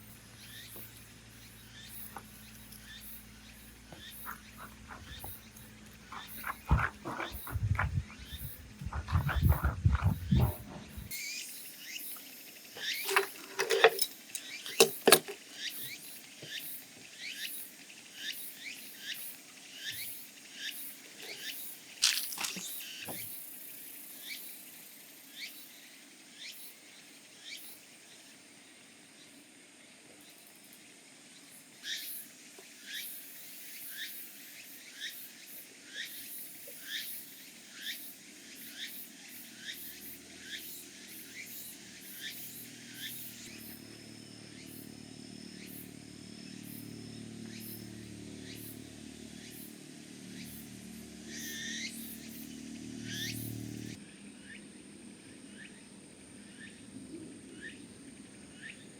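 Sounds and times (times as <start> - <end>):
small animal chirping: 3.9 - 11.1.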